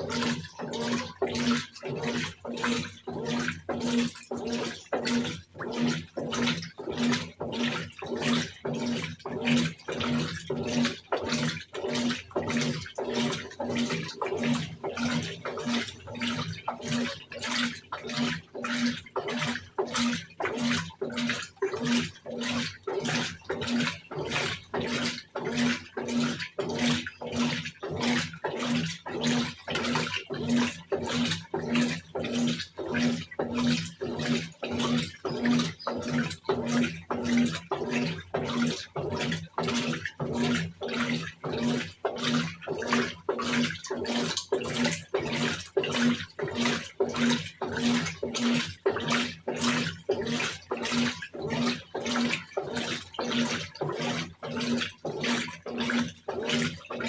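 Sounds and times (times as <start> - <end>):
washing machine agitator swishing: 0.0 - 57.0
washing machine motor hum: 0.0 - 57.0.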